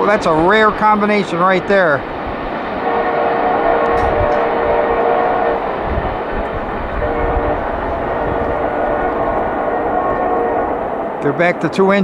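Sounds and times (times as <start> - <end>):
diesel locomotive rumble: 0.0 - 12.0
locomotive air horn: 2.8 - 11.8.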